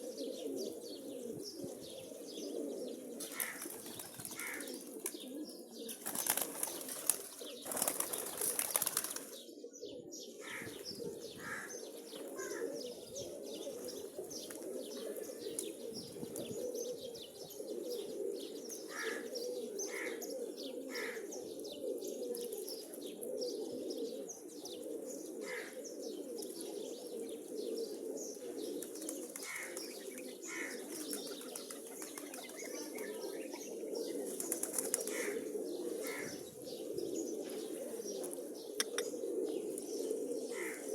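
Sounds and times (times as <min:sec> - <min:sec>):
pigeons cooing: 0:00.0 - 0:40.9
wings flapping: 0:03.3 - 0:05.2, 0:05.9 - 0:09.4, 0:30.9 - 0:33.1, 0:34.3 - 0:35.4.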